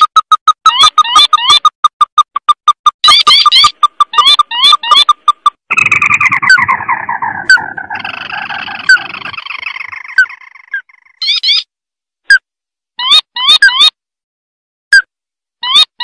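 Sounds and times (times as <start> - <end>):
bird chattering trill: 0.0 - 11.7.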